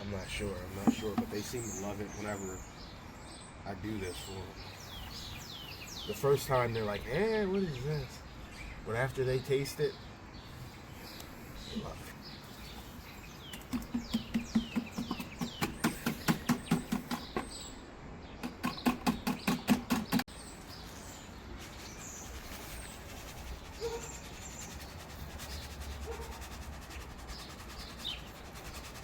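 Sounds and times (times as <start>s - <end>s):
quail chirping: 21.1s - 29.0s.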